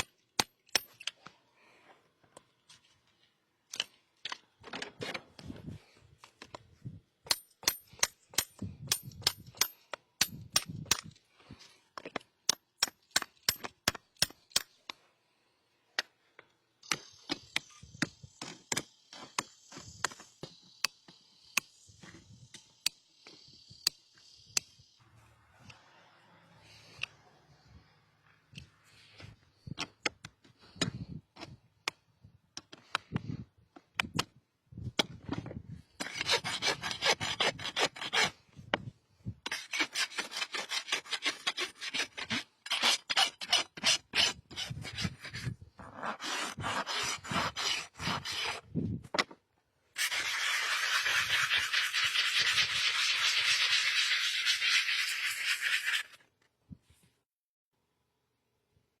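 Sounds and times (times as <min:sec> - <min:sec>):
rasp filing a hoof: 0:35.9 - 0:38.5, 0:39.4 - 0:48.7, 0:50.0 - 0:56.2.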